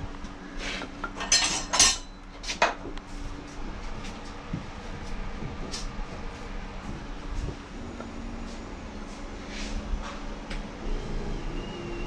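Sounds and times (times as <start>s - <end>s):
metal tools clinking and knocking: 1.1s - 2.2s.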